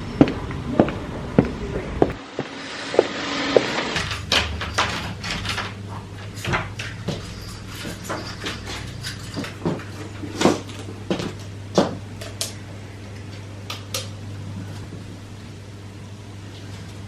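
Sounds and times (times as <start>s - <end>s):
steady low hum: 0.0s - 17.0s
knocks of household objects: 6.3s - 12.5s.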